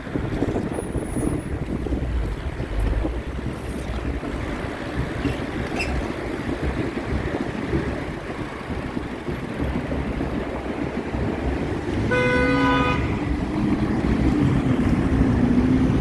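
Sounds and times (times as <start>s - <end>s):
road rumble: 0.0s - 16.0s
wind: 0.0s - 16.0s
vehicle horn honk: 12.0s - 13.2s.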